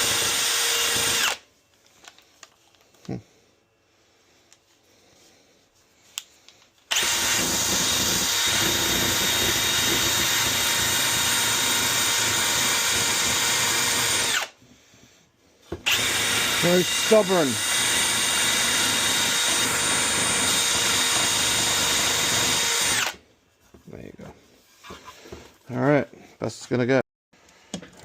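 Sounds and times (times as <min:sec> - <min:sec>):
power drill running: 0:00.0 - 0:01.4, 0:06.9 - 0:14.6, 0:15.8 - 0:23.2.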